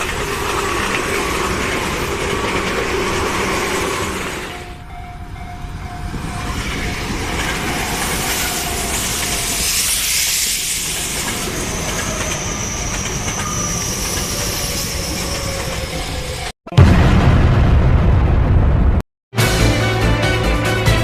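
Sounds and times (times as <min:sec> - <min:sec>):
electric train passing: 0:00.0 - 0:16.5.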